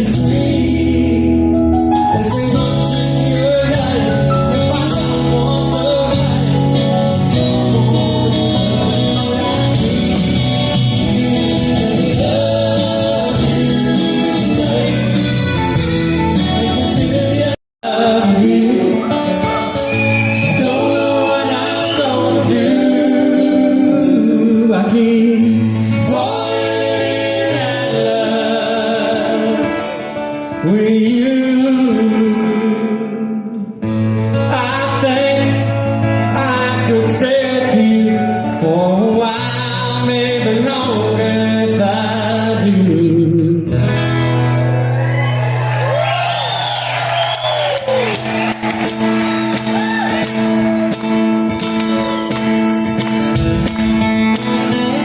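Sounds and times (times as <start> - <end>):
person singing: 0.0 - 43.8
guitar: 0.0 - 55.0
live band music: 0.0 - 55.0.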